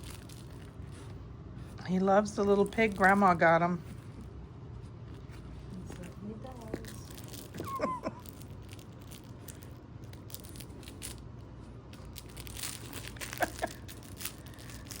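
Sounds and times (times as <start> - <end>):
toy being chewed and crinkled: 0.0 - 1.2, 2.4 - 3.4, 5.8 - 15.0.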